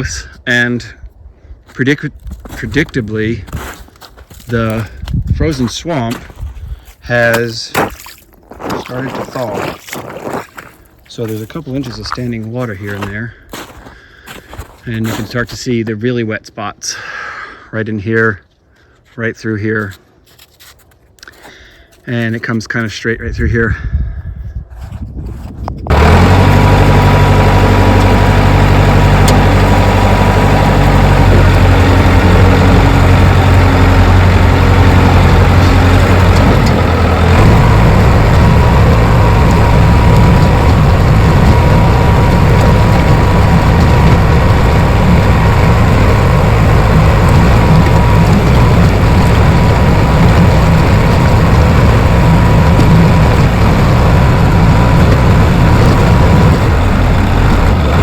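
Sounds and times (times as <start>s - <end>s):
bulldozer diesel engine running: 0.0s - 7.8s, 8.6s - 16.1s, 25.9s - 58.0s
thin steady whine: 25.9s - 58.0s.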